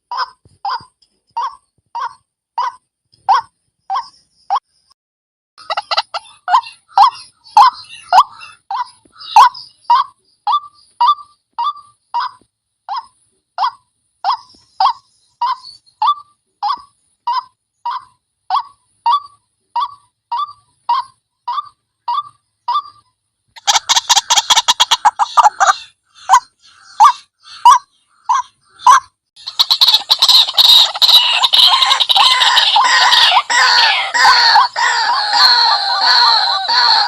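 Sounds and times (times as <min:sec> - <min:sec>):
waterhen calling: 0:05.6 - 0:12.4, 0:23.6 - 0:37.0.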